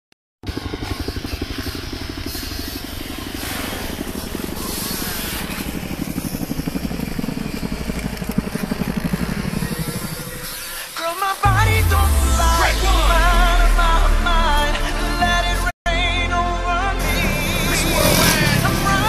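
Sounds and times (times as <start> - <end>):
dirt bike engine revving: 17.0 - 19.0.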